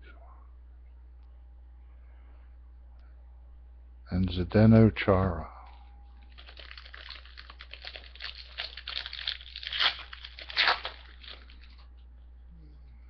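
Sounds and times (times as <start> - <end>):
wrapper tearing and crinkling: 6.3 - 11.8.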